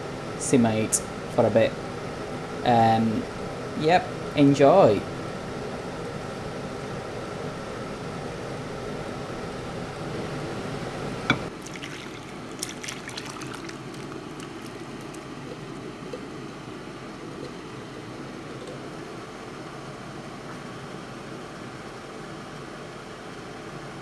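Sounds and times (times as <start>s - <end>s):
cooker hood fan hiss: 0.0s - 11.6s, 12.2s - 24.0s
curry bubbling in a pan: 11.5s - 17.7s.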